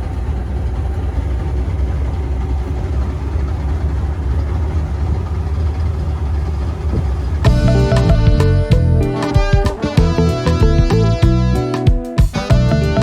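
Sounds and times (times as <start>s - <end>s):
motor running with low rumble: 0.0s - 11.7s, 12.4s - 13.0s
guitar music: 7.4s - 13.0s.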